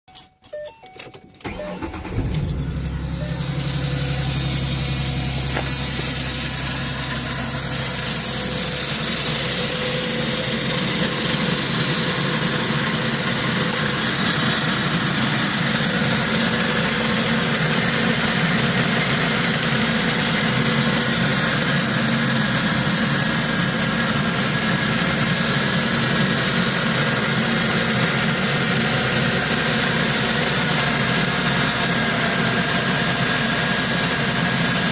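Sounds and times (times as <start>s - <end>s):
car engine starter cranking: 0.1s - 15.5s
car engine idling: 1.4s - 34.9s
loud metallic engine noise: 1.7s - 34.9s.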